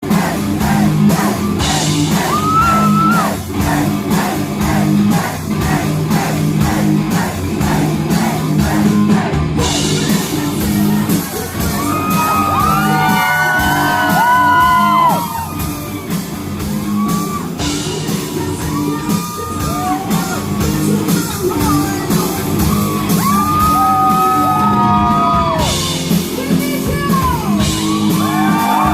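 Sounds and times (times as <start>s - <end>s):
person singing: 0.0s - 15.2s, 17.6s - 25.4s
live rock band playing: 0.0s - 28.9s.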